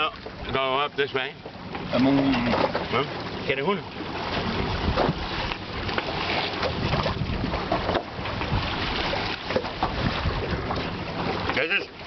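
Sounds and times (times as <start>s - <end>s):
boat rushing through water: 0.0s - 12.0s
water splashes: 0.0s - 12.0s
wind buffeting microphone: 4.0s - 11.6s.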